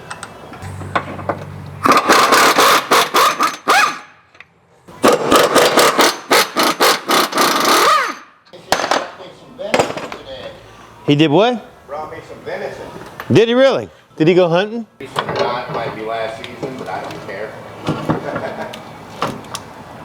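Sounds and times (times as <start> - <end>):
impact wrench hammering: 0.6 - 4.1, 5.0 - 9.0.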